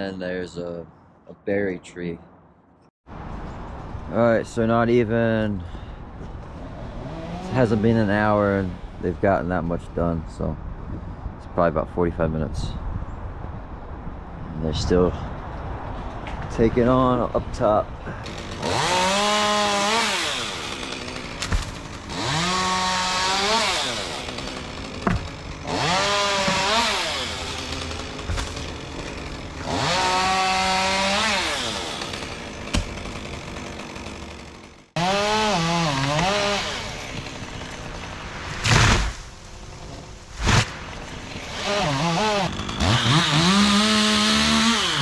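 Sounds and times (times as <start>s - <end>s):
chainsaw revving and idling: 6.6s - 9.0s, 18.1s - 39.2s, 40.4s - 45.0s.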